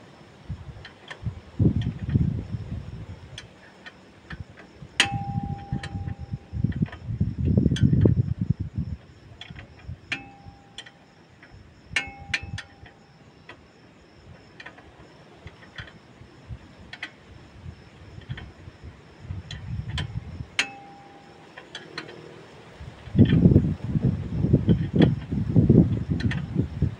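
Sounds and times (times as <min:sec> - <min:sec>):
ringing metal clinks: 0:05.0 - 0:06.7, 0:10.1 - 0:11.2, 0:12.0 - 0:13.2, 0:20.6 - 0:22.2.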